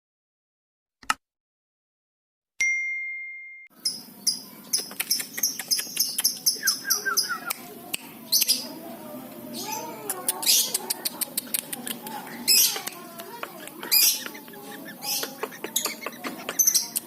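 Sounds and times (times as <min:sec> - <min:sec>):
bell-like ding: 0:02.6 - 0:03.8
birds chirping: 0:03.7 - 0:17.0.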